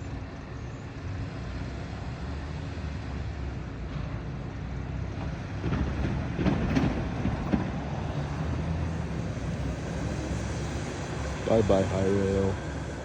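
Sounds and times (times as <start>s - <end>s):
truck rumbling on rail track: 0.0s - 13.0s.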